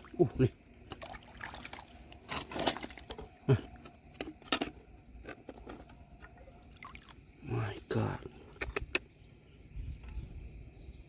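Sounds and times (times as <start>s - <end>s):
rocks clinking together: 2.2s - 6.3s.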